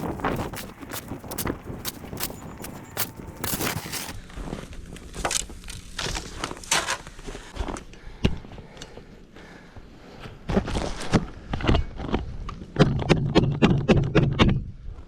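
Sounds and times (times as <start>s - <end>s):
footsteps crunching in snow: 0.0s - 4.2s.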